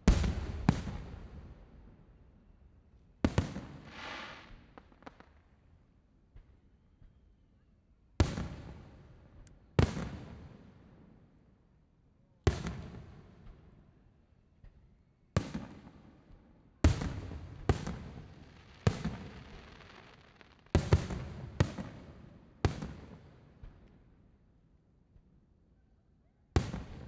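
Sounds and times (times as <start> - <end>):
fireworks bursting: 3.3 - 5.4, 17.0 - 22.0.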